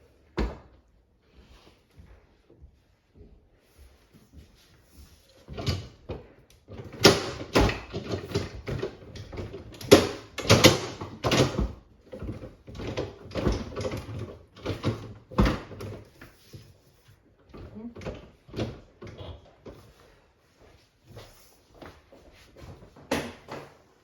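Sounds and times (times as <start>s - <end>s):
containers and drawers clattering: 6.7s - 16.1s.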